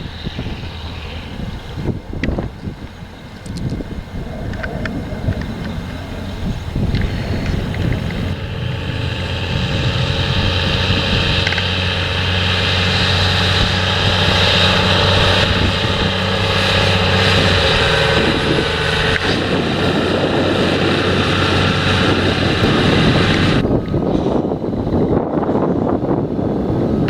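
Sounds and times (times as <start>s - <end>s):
farm machinery engines running: 0.0s - 27.0s.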